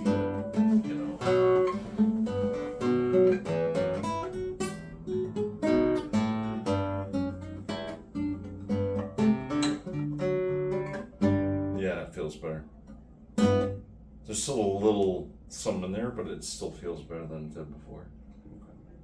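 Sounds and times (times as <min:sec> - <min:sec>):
acoustic guitar playing: 0:00.0 - 0:14.2.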